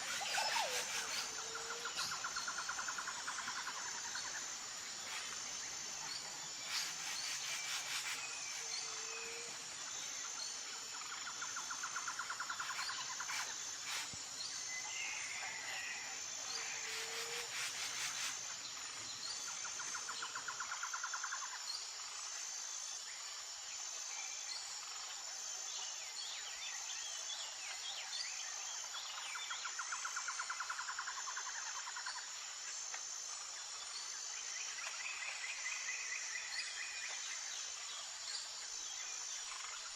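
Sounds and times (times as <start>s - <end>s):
birds calling and trilling: 0.0s - 2.7s
insects chirring: 0.0s - 25.7s.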